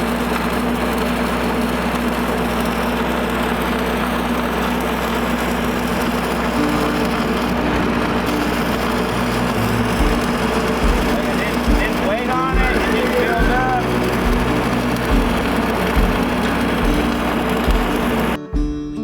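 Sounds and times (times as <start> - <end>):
engine humming: 0.0 - 19.0
steady tones: 5.0 - 19.0.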